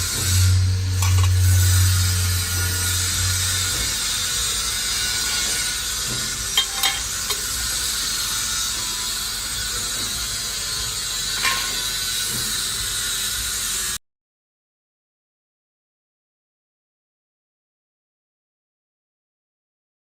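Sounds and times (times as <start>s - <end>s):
hydraulic press hissing: 0.0s - 13.9s.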